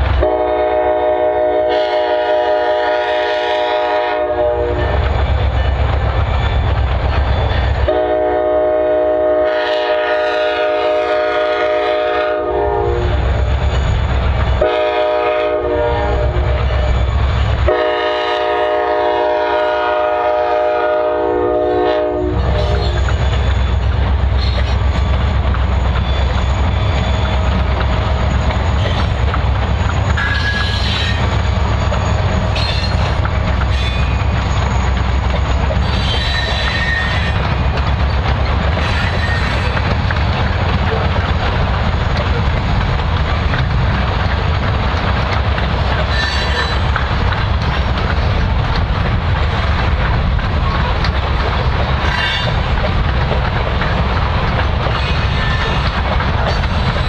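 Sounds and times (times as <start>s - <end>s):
locomotive rumble: 0.0s - 57.0s
locomotive horn blasts: 0.2s - 5.0s, 7.9s - 13.2s, 14.6s - 17.0s, 17.7s - 23.1s
wheel squeals: 5.1s - 7.9s, 22.5s - 37.5s, 38.8s - 39.9s, 46.0s - 47.0s, 54.8s - 57.0s
wheels clicking over rail joints: 22.4s - 57.0s.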